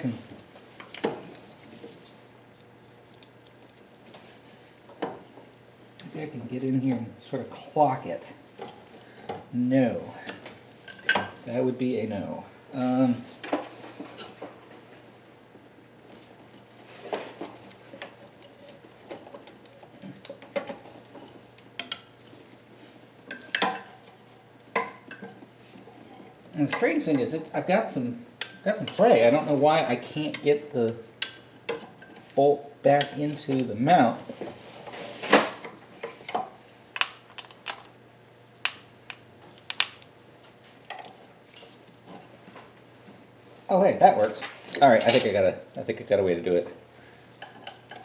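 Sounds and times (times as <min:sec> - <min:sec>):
metal tools clinking on metal: 0:44.9 - 0:45.4.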